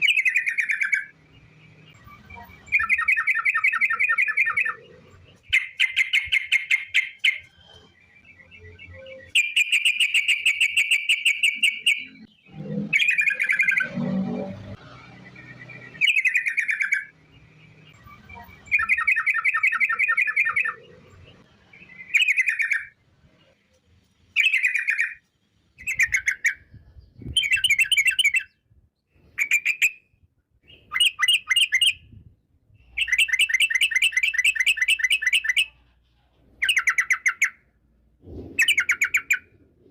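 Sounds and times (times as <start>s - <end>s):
bird trilling song: 0.0s - 39.9s.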